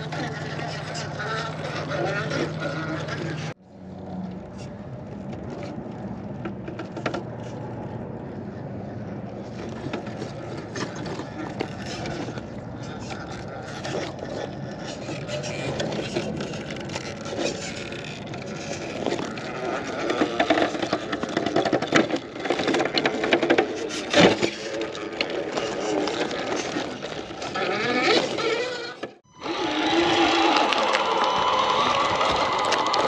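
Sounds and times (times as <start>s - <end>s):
electric motor whining: 25.8s - 33.0s.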